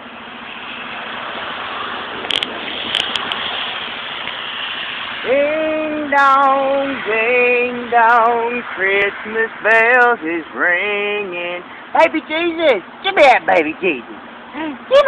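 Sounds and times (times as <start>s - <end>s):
steady rushing noise: 0.0s - 10.6s
sharp clicks: 2.2s - 3.4s
person singing long notes: 5.2s - 11.7s.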